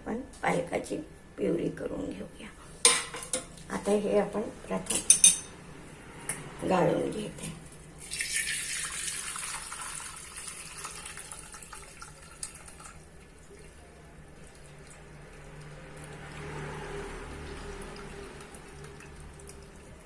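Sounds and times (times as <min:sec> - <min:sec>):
liquid splashing through strainer: 0:08.0 - 0:20.0.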